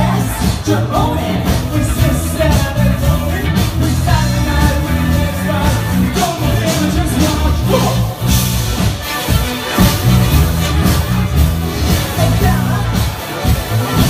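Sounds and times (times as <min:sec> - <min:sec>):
person singing: 0:00.0 - 0:08.2, 0:11.9 - 0:13.4
live band music: 0:00.0 - 0:14.0.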